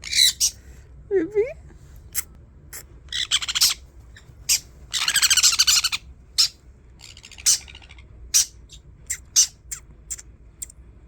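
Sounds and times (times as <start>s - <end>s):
parrot squawking: 0.0s - 0.6s, 3.1s - 3.8s, 4.5s - 9.6s.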